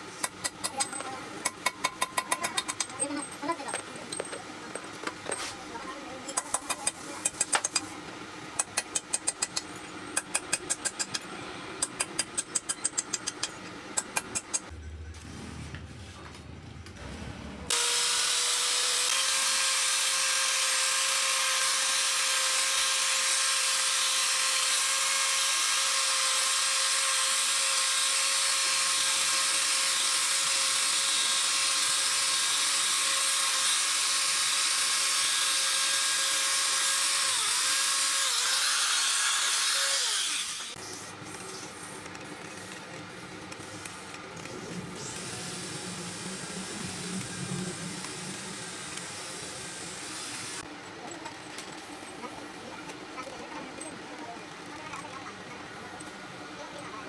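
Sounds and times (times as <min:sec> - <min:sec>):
power tool whining: 0:17.7 - 0:40.8.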